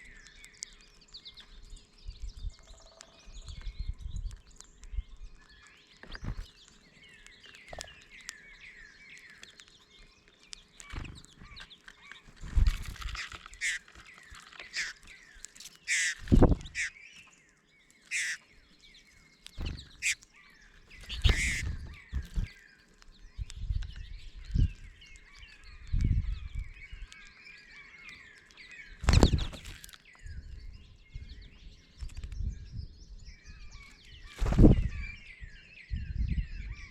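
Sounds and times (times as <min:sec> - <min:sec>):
birds chattering and chirping: 0:00.0 - 0:36.9
low thumps: 0:19.6 - 0:20.0.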